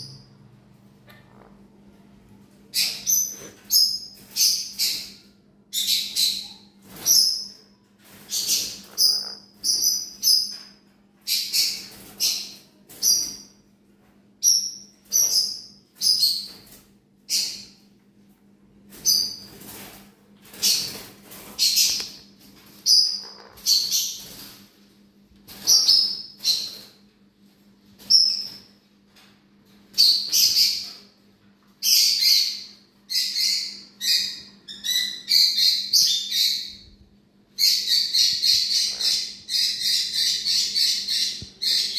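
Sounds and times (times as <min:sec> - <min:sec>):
bird chirping: 0:02.7 - 0:13.6, 0:14.4 - 0:16.7, 0:20.5 - 0:24.5, 0:25.5 - 0:27.0, 0:29.9 - 0:31.1, 0:31.8 - 0:37.0, 0:37.6 - 0:41.9.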